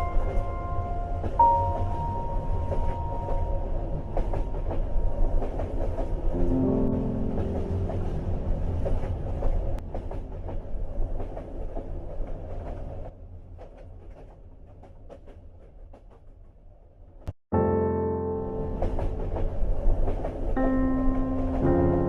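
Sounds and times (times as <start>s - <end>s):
soft music: 0.0s - 10.9s, 17.6s - 22.0s
train rumble: 0.0s - 17.2s, 18.3s - 22.0s.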